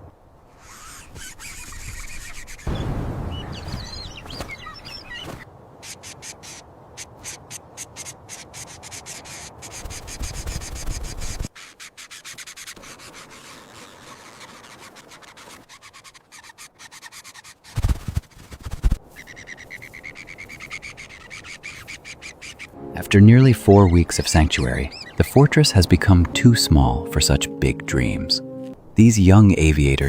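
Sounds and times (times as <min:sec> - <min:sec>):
rapid scratching and rubbing: 0:00.6 - 0:02.7, 0:05.8 - 0:22.8
bird chirps: 0:01.7 - 0:05.4, 0:19.2 - 0:26.4.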